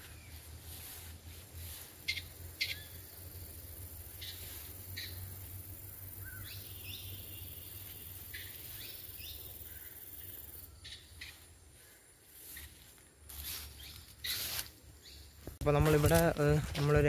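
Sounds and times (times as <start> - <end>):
bird rising chirps: 6.0 - 11.5.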